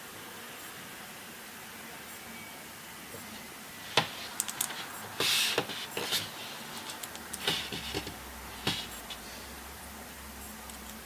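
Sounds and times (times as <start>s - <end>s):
scraping or rustling: 3.8s - 9.3s
small hard objects clicking: 4.3s - 4.8s.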